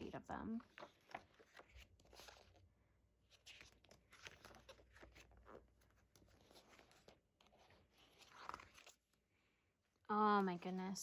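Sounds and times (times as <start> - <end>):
pages of a book turning: 0.6 - 9.2.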